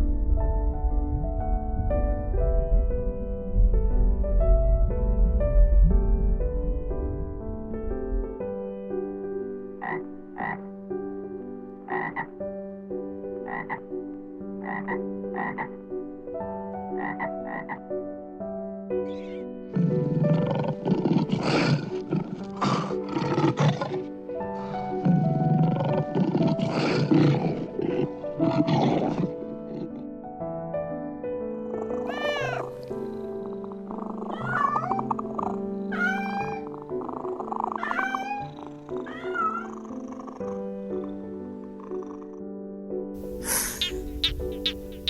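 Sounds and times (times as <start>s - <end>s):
soft background music: 0.0s - 45.0s
animal rasping calls: 19.0s - 30.0s, 31.7s - 32.8s, 33.4s - 40.0s, 43.2s - 45.0s.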